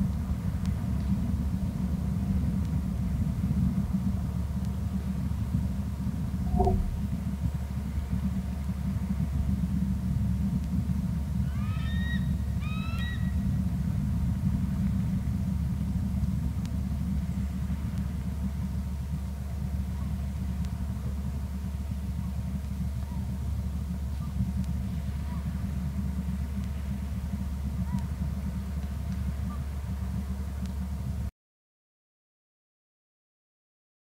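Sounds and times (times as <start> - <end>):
low rumble: 6.2 - 7.3.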